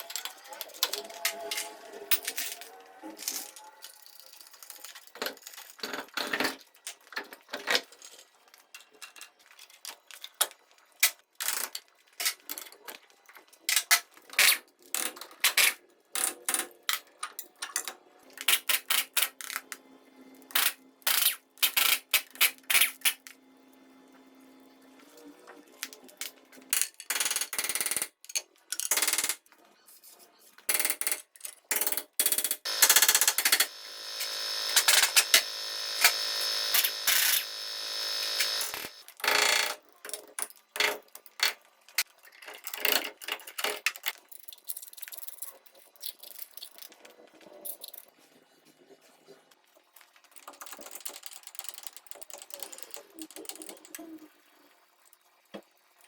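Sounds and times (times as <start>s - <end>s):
metal parts clinking and knocking: 0.0s - 8.1s.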